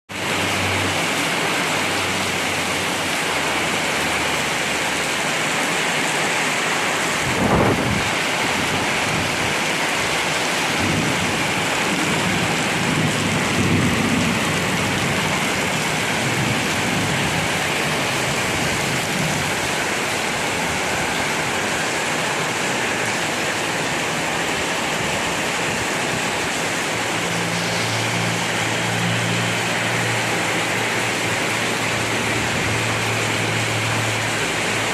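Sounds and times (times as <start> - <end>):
heavy rain pouring: 0.1 - 34.9
strong wind: 0.4 - 34.9
low rolling thunder: 7.2 - 9.4, 10.6 - 20.8
thunderclap: 10.7 - 17.5.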